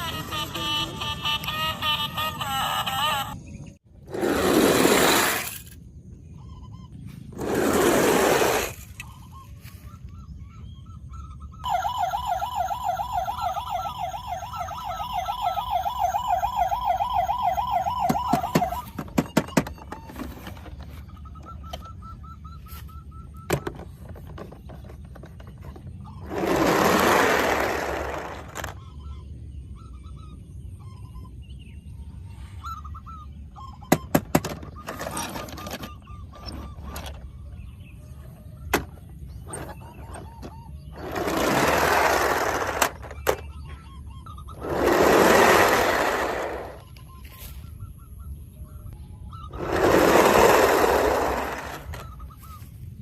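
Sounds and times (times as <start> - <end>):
toy siren warbling: 0.0 - 3.4, 11.0 - 23.8, 38.2 - 47.0, 49.4 - 52.5.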